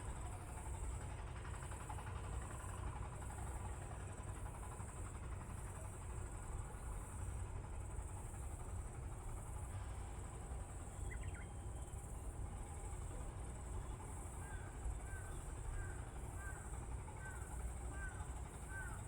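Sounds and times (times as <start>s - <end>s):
insects trilling: 10.9s - 11.5s.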